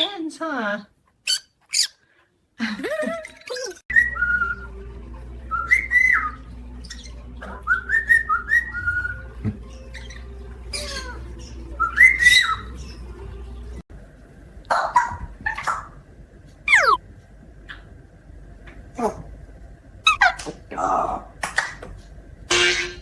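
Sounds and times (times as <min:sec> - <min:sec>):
parrot squawks: 0:01.2 - 0:02.0, 0:09.9 - 0:12.9, 0:16.7 - 0:17.0, 0:20.1 - 0:20.5
parrot whistles: 0:03.9 - 0:04.7, 0:05.5 - 0:09.3, 0:11.8 - 0:12.7, 0:16.7 - 0:17.0, 0:20.1 - 0:20.4.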